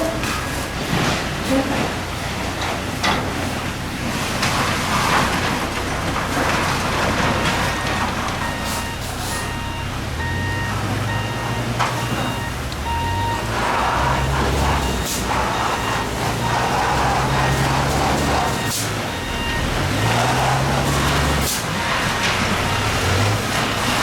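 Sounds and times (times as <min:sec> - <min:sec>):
engine rumble: 0:00.0 - 0:24.0
reversing alarm beeping: 0:06.4 - 0:24.0.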